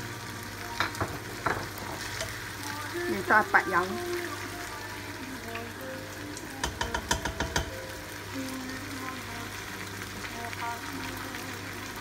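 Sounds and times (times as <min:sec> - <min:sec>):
background music: 0:00.0 - 0:12.0
faint sizzling of frying food: 0:00.0 - 0:12.0
spatula clicking against pot: 0:06.6 - 0:07.7.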